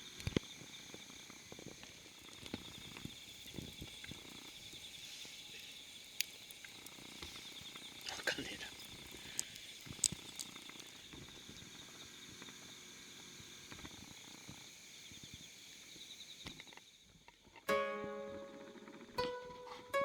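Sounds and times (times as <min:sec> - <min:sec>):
crickets trilling: 0:00.0 - 0:20.0
strummed ukulele chord: 0:17.7 - 0:20.0.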